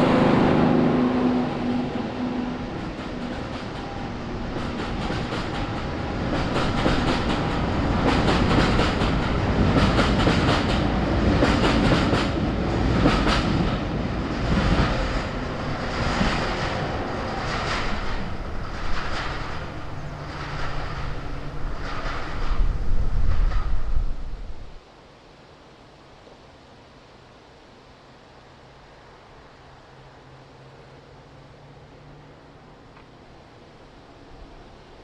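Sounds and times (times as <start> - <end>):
train rumble: 0.0 - 24.9
train wheels clicking over rail joints: 2.6 - 24.8.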